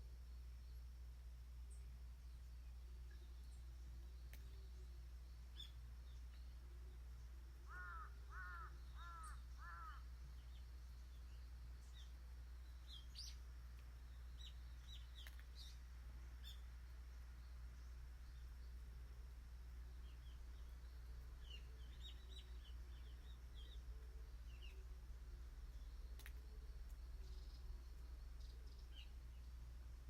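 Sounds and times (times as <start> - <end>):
steady low hum: 0.0 - 30.0
small birds chirping: 1.7 - 30.0
crow cawing: 7.7 - 10.1.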